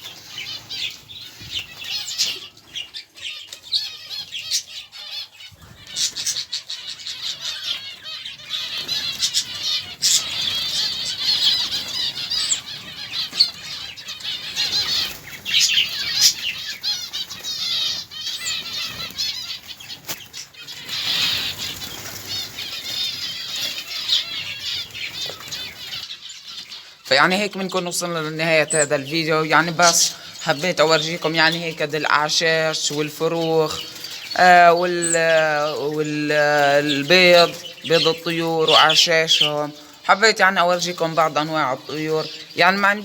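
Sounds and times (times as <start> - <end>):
small birds chirping: 0.0 - 43.0
wings flapping: 14.4 - 25.9.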